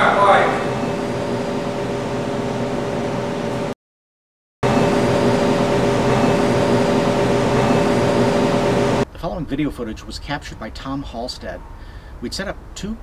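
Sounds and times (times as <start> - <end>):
faint steady tones: 0.0 - 3.7, 4.6 - 9.0
camcorder hiss and hum: 4.7 - 9.0.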